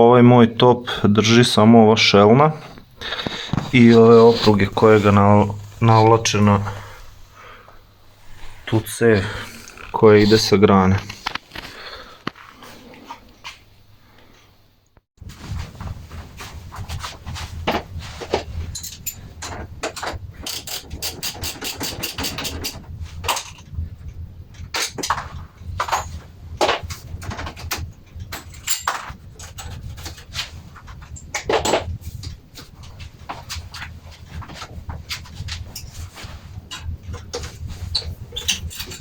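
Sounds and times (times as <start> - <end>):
steady low hum: 0.8 - 14.8.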